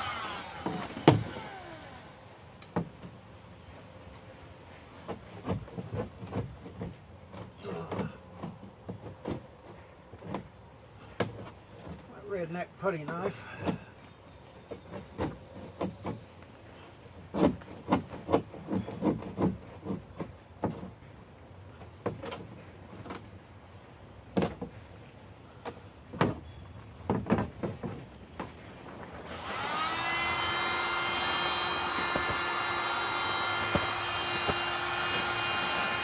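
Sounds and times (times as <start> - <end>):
heat gun blower humming: 0.0 - 2.2, 29.3 - 36.0.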